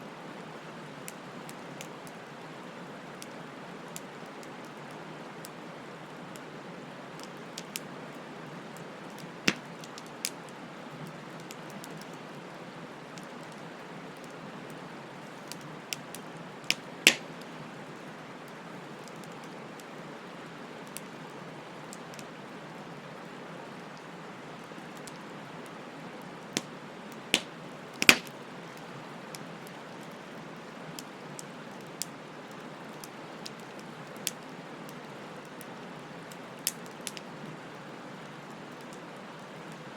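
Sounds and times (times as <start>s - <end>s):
bonfire crackling and hissing: 0.0s - 39.9s
sharp pops of burning wood: 9.2s - 10.4s, 15.5s - 17.5s, 26.6s - 28.4s, 33.0s - 34.4s, 36.6s - 37.2s.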